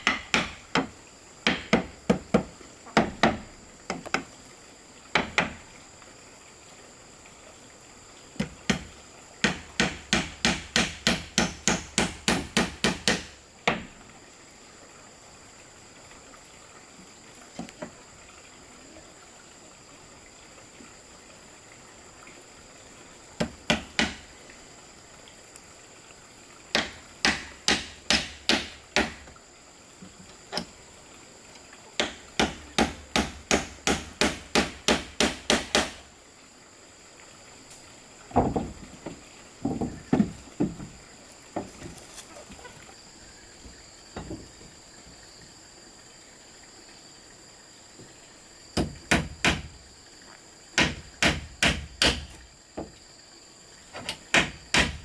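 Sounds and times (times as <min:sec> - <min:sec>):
hand tool striking wood: 0:00.0 - 0:04.3, 0:05.2 - 0:05.6, 0:08.4 - 0:13.9, 0:23.4 - 0:24.3, 0:26.7 - 0:29.3, 0:32.0 - 0:36.0, 0:48.8 - 0:49.8, 0:50.8 - 0:52.9, 0:54.0 - 0:55.0.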